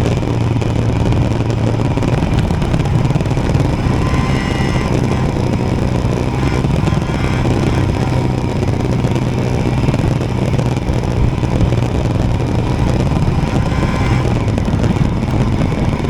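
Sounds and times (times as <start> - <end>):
motorcycle engine running: 0.0 - 16.0
road and wind rush: 0.0 - 16.0.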